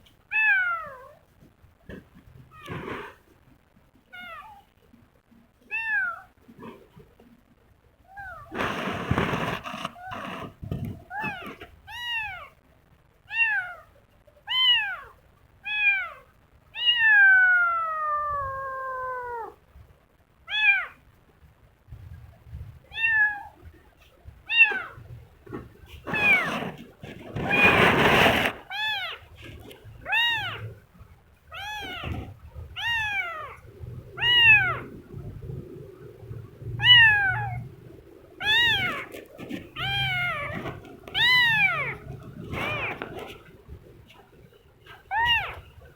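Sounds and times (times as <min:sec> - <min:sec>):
rustling: 0:00.0 - 0:04.5, 0:08.2 - 0:12.5, 0:21.9 - 0:45.9
kitten meowing: 0:14.5 - 0:15.1, 0:16.8 - 0:19.6, 0:20.5 - 0:21.0, 0:22.9 - 0:23.6, 0:24.5 - 0:25.1, 0:26.1 - 0:26.6, 0:27.4 - 0:29.3, 0:30.0 - 0:30.8, 0:31.5 - 0:34.9, 0:36.8 - 0:37.7, 0:38.4 - 0:43.4, 0:45.0 - 0:45.7.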